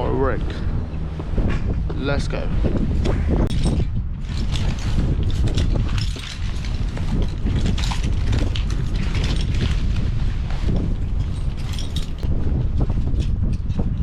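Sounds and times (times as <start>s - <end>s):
wind buffeting microphone: 0.0s - 14.0s
metal hardware clicking and rattling: 3.4s - 9.9s, 11.1s - 12.3s.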